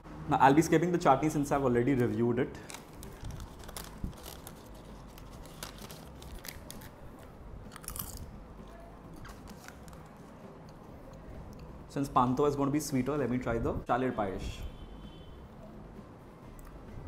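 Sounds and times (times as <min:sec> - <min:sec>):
person chewing: 0:07.7 - 0:08.3.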